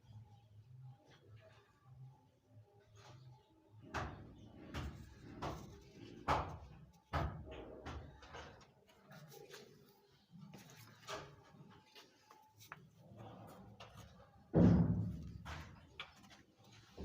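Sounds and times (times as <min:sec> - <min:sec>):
knocks and clunks: 0:14.5 - 0:16.0.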